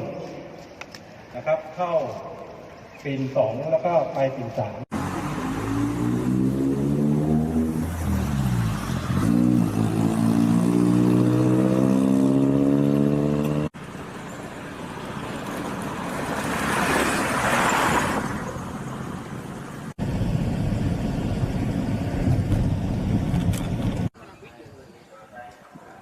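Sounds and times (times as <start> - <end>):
vehicle passing: 4.9 - 14.0, 14.7 - 19.9.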